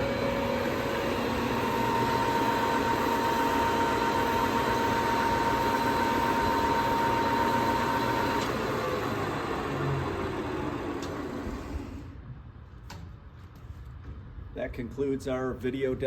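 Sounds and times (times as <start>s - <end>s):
lathe machine hum: 0.0s - 12.1s
thin steady whine: 0.0s - 12.1s.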